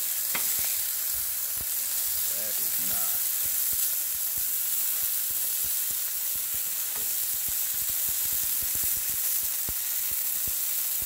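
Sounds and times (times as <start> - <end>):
food sizzling on a griddle: 0.0 - 11.0.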